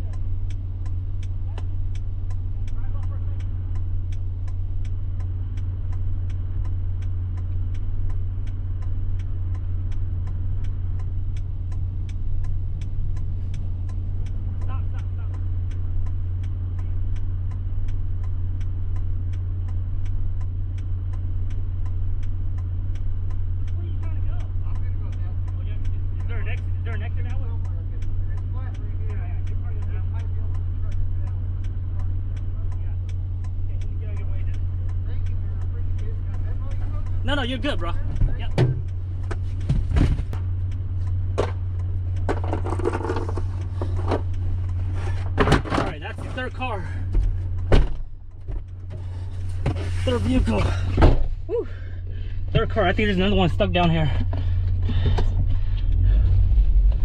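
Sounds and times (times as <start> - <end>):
indicator relay clicking: 0.0 - 39.7, 40.3 - 44.9
low engine drone: 0.0 - 57.0.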